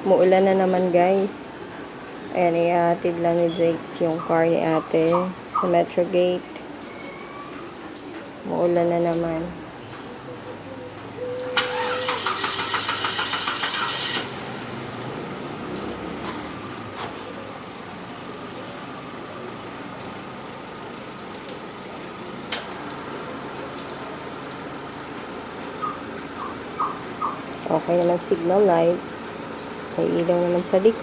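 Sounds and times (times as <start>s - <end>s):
starter cranking engine: 11.6s - 15.0s
car engine idling: 11.6s - 31.0s.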